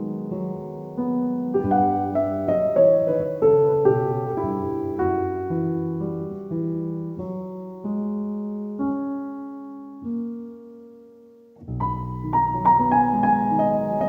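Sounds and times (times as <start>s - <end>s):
soft piano music: 0.0s - 14.0s.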